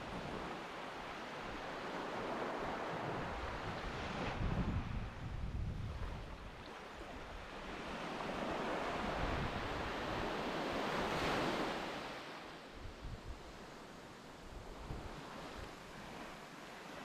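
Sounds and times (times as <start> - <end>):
wind rumbling on microphone: 1.4 - 11.9, 12.7 - 13.8, 14.4 - 16.4.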